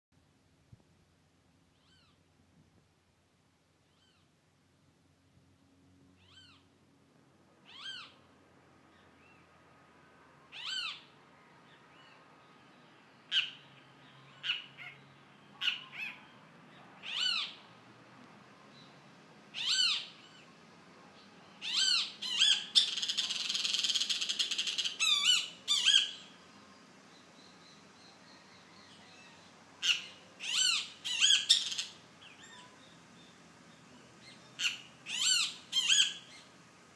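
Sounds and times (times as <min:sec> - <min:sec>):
bird mewing calls: 0:13.3 - 0:17.7, 0:19.5 - 0:20.5, 0:21.6 - 0:26.4, 0:27.8 - 0:36.6.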